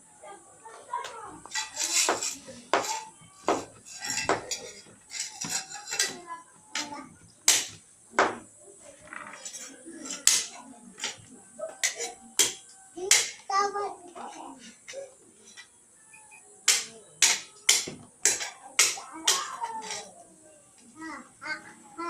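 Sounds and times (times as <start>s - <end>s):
clinks of small hard objects: 1.0s - 7.0s, 9.0s - 13.4s.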